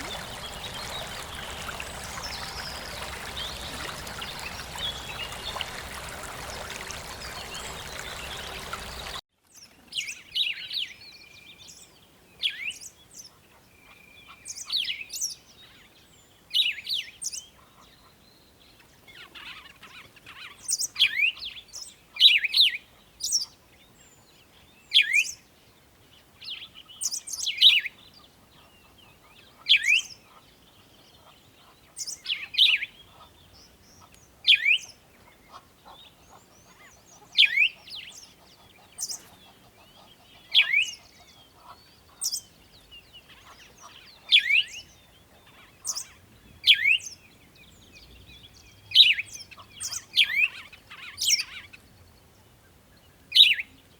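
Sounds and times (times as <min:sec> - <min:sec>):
birds chirping: 0:00.0 - 0:09.2, 0:28.6 - 0:52.2
running water: 0:00.0 - 0:09.2.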